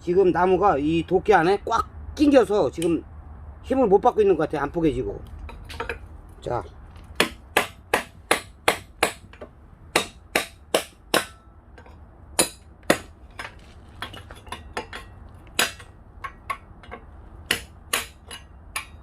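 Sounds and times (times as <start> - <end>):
hammer striking: 7.2 - 19.0.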